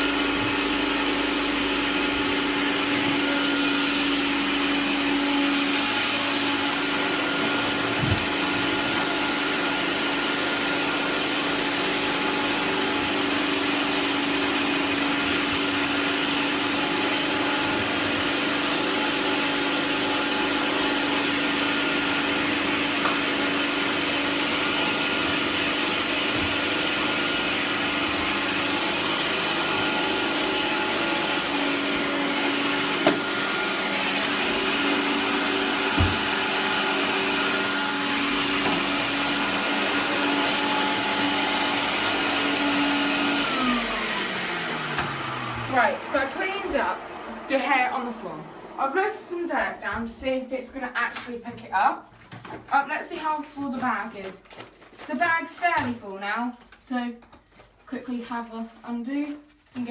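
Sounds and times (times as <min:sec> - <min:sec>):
vacuum cleaner motor hum: 0:00.0 - 0:50.5
vacuum hose knocking: 0:34.6 - 0:36.8.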